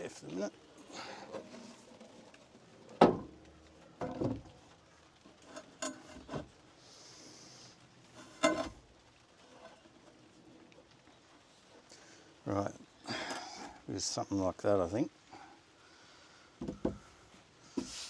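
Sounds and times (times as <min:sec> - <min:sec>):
wooden boards knocking: 0:03.0 - 0:03.4, 0:16.6 - 0:17.0
brief hiss: 0:17.8 - 0:18.0.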